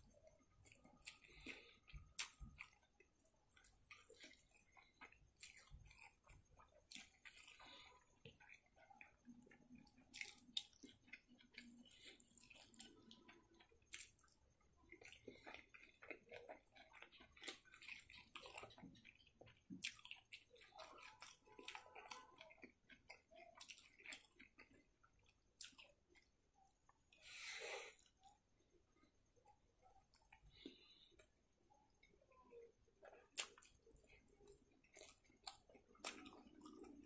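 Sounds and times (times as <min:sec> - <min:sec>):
person chewing food: 0:00.0 - 0:37.0
wet lip and tongue smacks: 0:00.6 - 0:02.8, 0:33.0 - 0:34.2.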